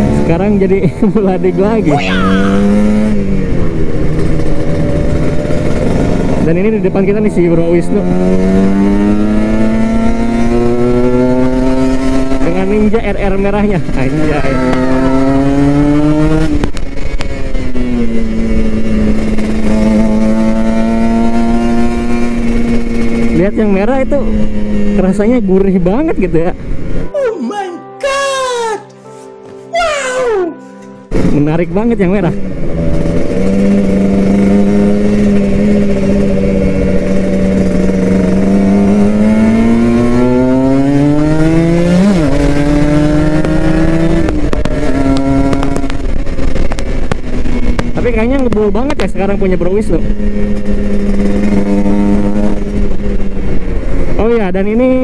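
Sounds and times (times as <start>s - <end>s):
two-stroke motorcycle engine running: 0.0s - 25.7s, 31.1s - 55.0s.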